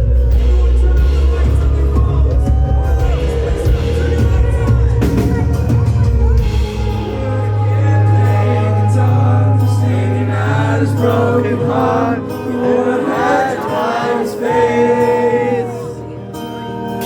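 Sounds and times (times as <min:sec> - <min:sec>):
choir-like vocals: 0:00.0 - 0:16.4
live band playing: 0:00.0 - 0:17.0
wordless pitch-bending melody: 0:03.2 - 0:16.4.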